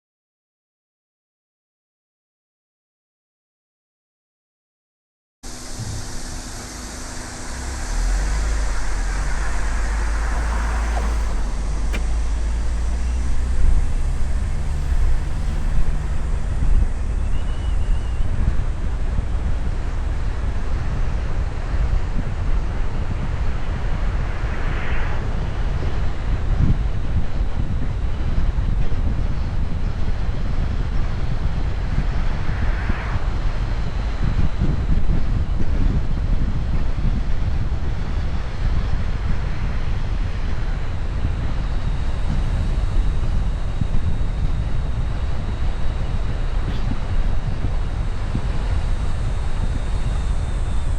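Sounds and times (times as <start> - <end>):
vehicle engine and road noise: 5.4 - 50.9
wind buffeting microphone: 5.5 - 50.9
sharp click: 9.6 - 13.2.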